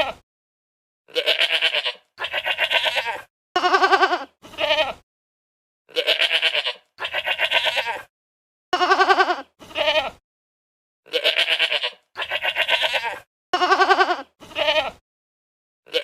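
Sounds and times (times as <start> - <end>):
quavering bleating calls: 1.1 - 5.0, 5.9 - 8.1, 8.8 - 10.2, 11.1 - 15.0.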